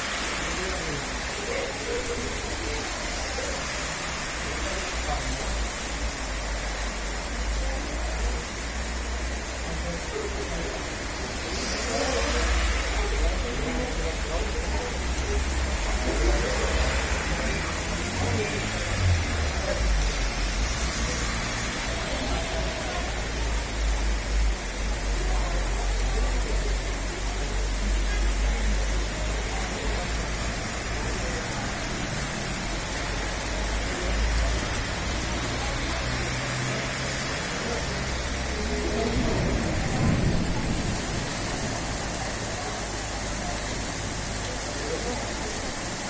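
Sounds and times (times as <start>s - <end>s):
steady rain hiss: 0.0s - 46.0s.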